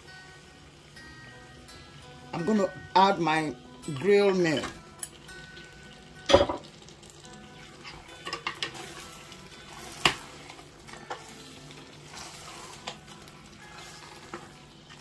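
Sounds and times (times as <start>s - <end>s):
sauce sizzling: 0.0s - 15.0s.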